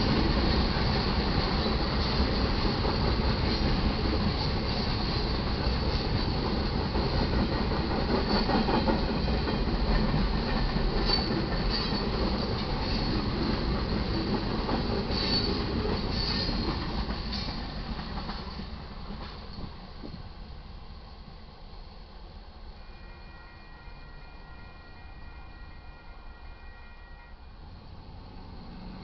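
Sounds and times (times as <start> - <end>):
freight train rumbling past: 0.0 - 29.0
train wheel squeals: 8.1 - 14.2, 15.0 - 17.6, 22.8 - 27.6.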